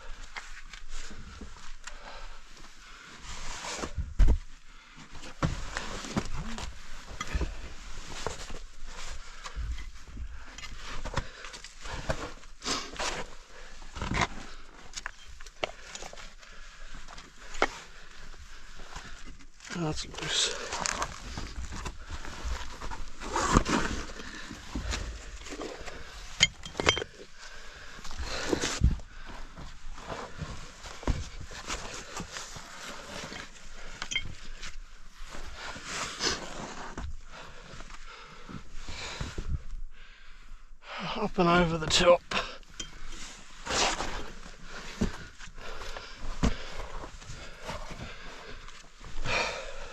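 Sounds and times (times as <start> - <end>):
clothing scraping on rock: 20.0 - 26.4, 35.2 - 37.1.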